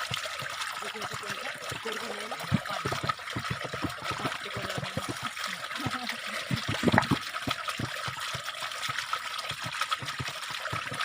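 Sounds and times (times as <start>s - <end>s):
water spurting and gurgling: 0.0s - 11.0s.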